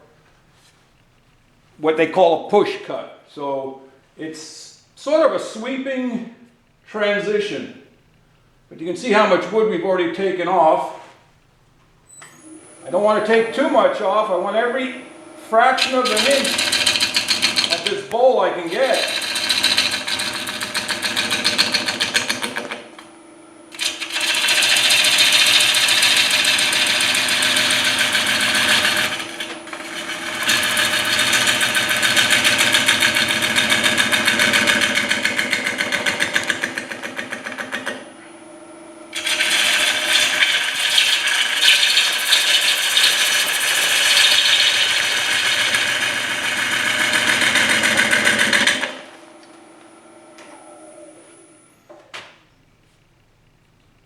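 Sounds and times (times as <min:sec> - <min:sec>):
lathe running: 0:12.3 - 0:23.1, 0:23.7 - 0:38.1, 0:38.9 - 0:51.0
gouge scraping wood on a lathe: 0:15.8 - 0:23.0, 0:23.7 - 0:38.1, 0:39.1 - 0:49.1.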